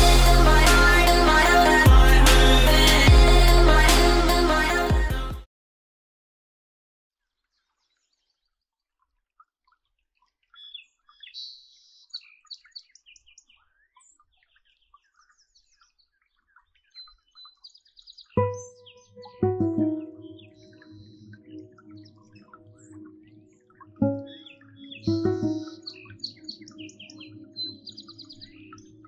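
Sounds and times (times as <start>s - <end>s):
music track: 0.0s - 5.4s, 18.4s - 29.0s
birds chirping and singing: 10.2s - 29.0s.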